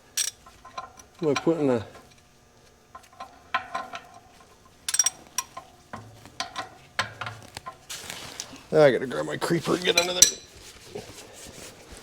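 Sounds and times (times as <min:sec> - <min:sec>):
metal tools clinking: 0:00.0 - 0:10.6
sharp ringing metal clank: 0:03.0 - 0:07.8, 0:10.0 - 0:10.5.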